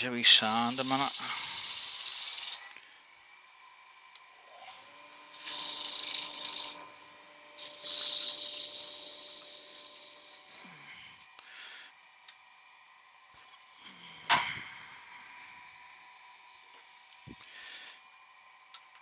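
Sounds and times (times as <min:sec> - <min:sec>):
sandpaper hissing on spinning wood: 0:00.0 - 0:02.7, 0:04.8 - 0:06.9, 0:07.6 - 0:11.2
lathe motor humming: 0:00.0 - 0:13.8.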